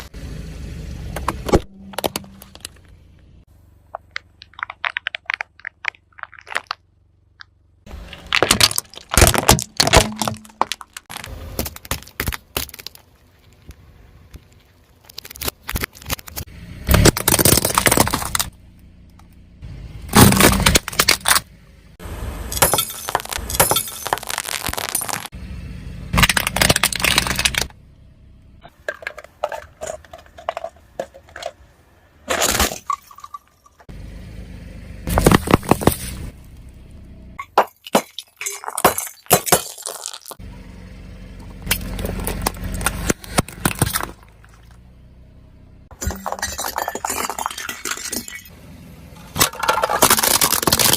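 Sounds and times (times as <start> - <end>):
brittle objects crushed under tyre: 3.9 - 18.6, 20.1 - 21.5, 22.5 - 25.3, 26.2 - 27.8, 28.7 - 31.6, 32.2 - 33.9, 35.1 - 36.3, 37.4 - 40.4, 41.6 - 44.8, 45.9 - 48.6, 49.2 - 50.9.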